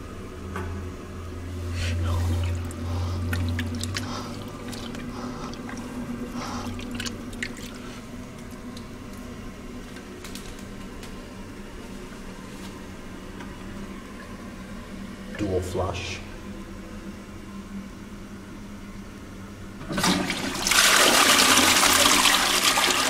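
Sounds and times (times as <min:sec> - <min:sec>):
low hum: 0:00.0 - 0:10.6
toilet flushing: 0:02.0 - 0:08.0, 0:19.8 - 0:23.0.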